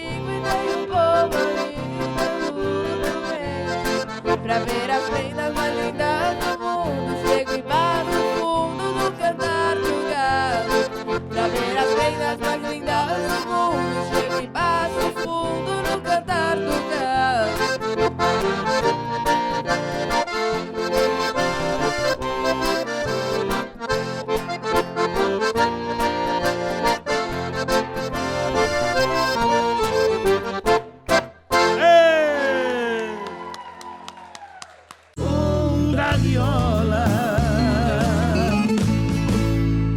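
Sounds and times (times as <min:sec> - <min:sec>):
accordion melody: 0:00.0 - 0:33.4, 0:35.8 - 0:39.9
rhythmic accompaniment: 0:00.4 - 0:32.0.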